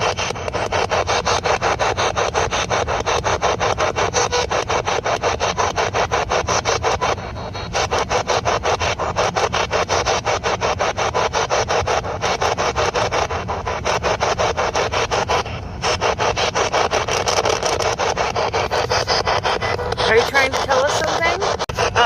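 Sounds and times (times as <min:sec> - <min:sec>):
radio static chopping: 0:07.8 - 0:22.0.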